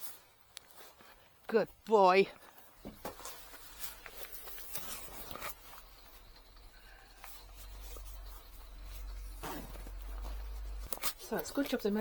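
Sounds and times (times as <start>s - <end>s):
waterproof clothing rustling: 2.4s - 12.0s.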